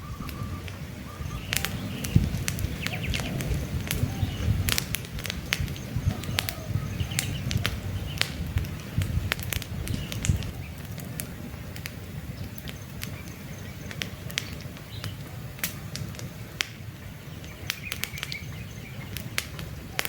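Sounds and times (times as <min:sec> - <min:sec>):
faint birds chirping: 0:00.0 - 0:20.0
logs crackling and popping: 0:00.0 - 0:20.0
low rush of flames: 0:00.0 - 0:20.0.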